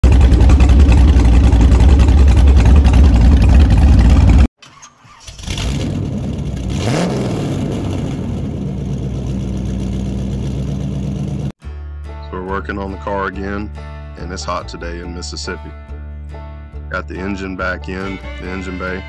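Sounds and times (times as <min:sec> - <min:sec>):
engine rumbling: 0:00.0 - 0:04.5, 0:05.1 - 0:11.6.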